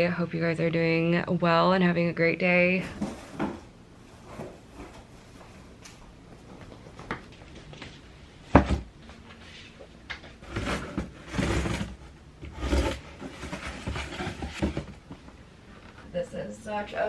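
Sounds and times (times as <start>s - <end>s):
plant pot rubbing and scraping: 10.4s - 14.9s.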